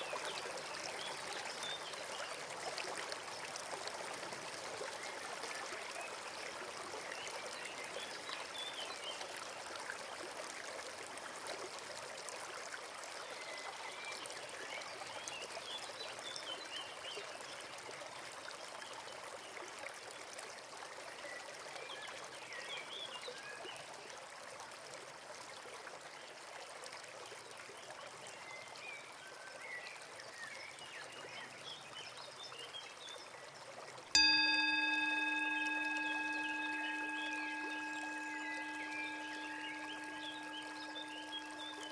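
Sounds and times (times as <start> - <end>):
forest stream running: 0.0 - 41.9
faint high chirps: 34.2 - 41.9
loud ringing chime: 34.2 - 41.9.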